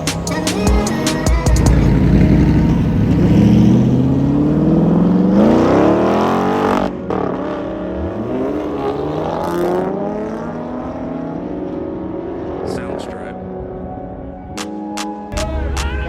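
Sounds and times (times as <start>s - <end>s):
car engine accelerating: 0.0s - 14.3s.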